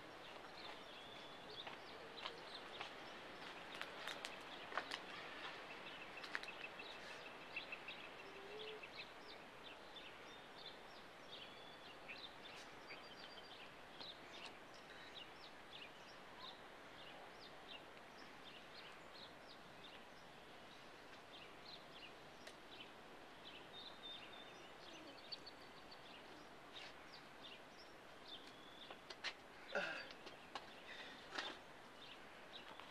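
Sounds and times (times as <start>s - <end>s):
birds chirping: 0.0s - 32.9s
soft steady hiss: 0.0s - 32.9s.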